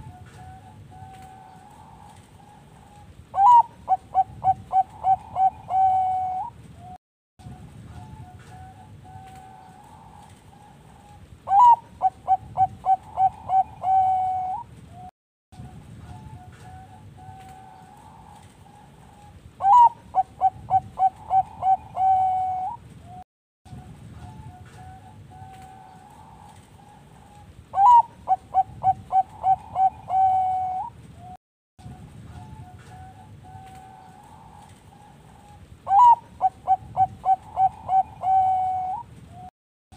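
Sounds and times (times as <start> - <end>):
dove cooing close by: 0.0 - 7.0, 8.0 - 15.1, 16.0 - 23.2, 24.2 - 31.0, 31.9 - 39.5
faint doves cooing: 0.0 - 7.0, 7.6 - 15.1, 15.7 - 23.2, 24.2 - 39.5.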